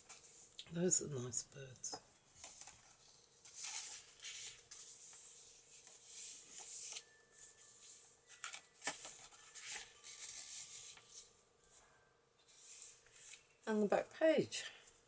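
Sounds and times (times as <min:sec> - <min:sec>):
paper pages rustling: 0:02.3 - 0:11.3, 0:12.5 - 0:13.6.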